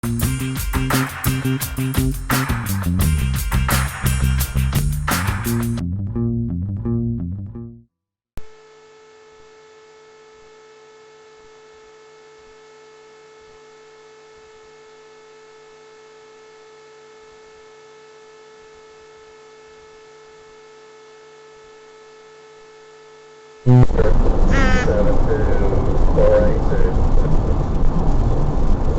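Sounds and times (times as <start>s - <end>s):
plucked-string tune: 5.8s - 7.8s
steady electrical hum: 8.4s - 28.9s.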